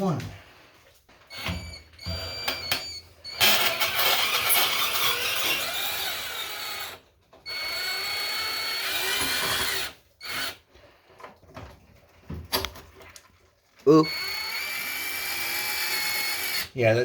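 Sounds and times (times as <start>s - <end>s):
power drill unscrewing: 1.3s - 8.1s.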